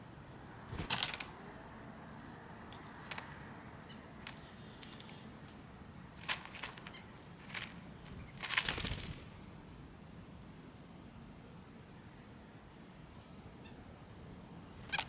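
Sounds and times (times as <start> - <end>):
faint steady background noise: 0.0 - 15.0
scratchy rattle: 6.2 - 9.4.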